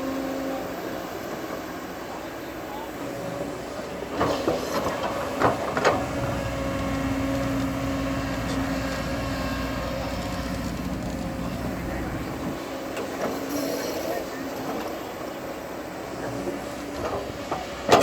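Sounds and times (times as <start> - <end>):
bulldozer diesel engine running: 0.0 - 13.5.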